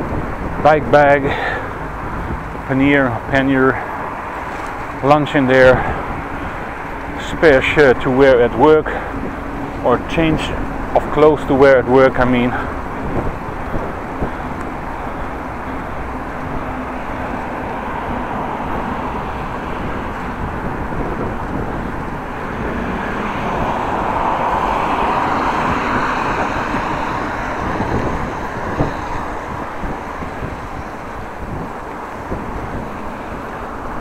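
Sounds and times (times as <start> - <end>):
road noise while cycling: 0.0 - 34.0
wind on microphone: 0.0 - 34.0.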